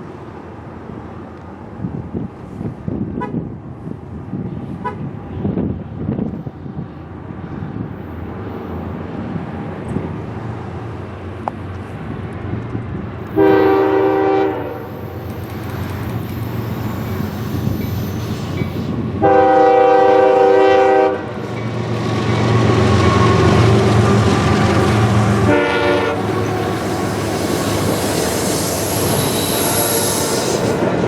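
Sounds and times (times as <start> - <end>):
train rumbling: 0.0 - 31.0
locomotive air horn blasts: 13.3 - 15.1, 19.2 - 21.5, 22.7 - 27.9, 28.8 - 30.8.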